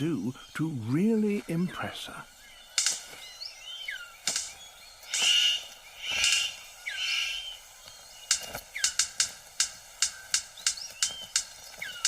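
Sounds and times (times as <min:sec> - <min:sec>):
harsh buzzy bird calls: 0:00.0 - 0:12.0
sharp snapping clicks: 0:02.7 - 0:03.2, 0:04.0 - 0:06.6, 0:08.2 - 0:12.0.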